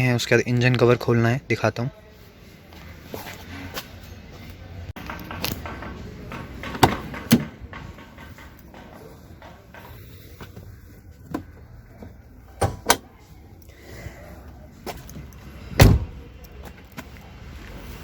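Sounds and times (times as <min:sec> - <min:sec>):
car bonnet clunking open: 0:12.6 - 0:13.1, 0:15.8 - 0:16.2.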